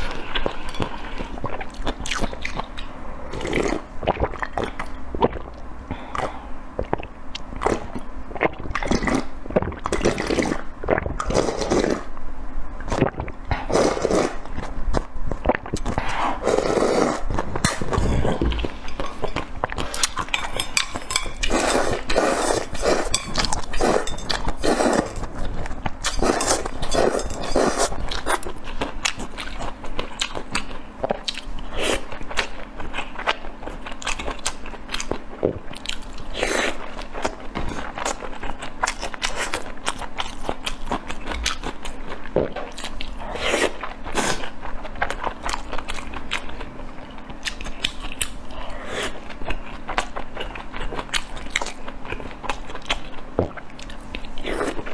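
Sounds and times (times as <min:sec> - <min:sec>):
person chewing crunchy food: 0:12.9 - 0:54.9.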